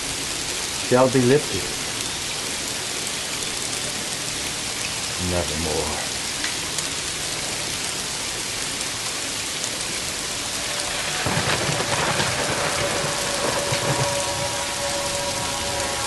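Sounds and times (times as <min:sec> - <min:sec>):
heavy rain: 0:00.0 - 0:16.0
thunder rumbling: 0:10.0 - 0:16.0.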